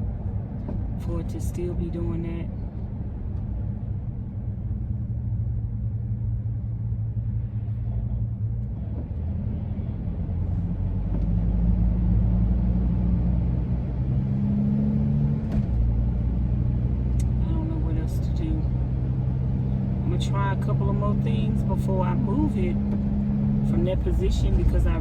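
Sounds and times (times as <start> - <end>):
van driving rumble: 0.0 - 25.0.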